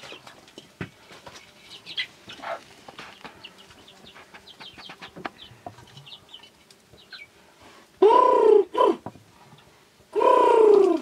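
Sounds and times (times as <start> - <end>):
bird chirps: 3.3 - 7.3.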